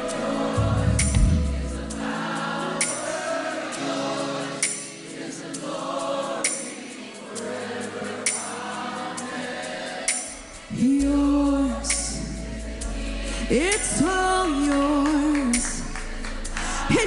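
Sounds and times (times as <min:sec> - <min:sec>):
sustained chords: 0:00.0 - 0:02.2
voices singing held notes: 0:00.0 - 0:17.0
light high percussion hits: 0:00.5 - 0:02.0.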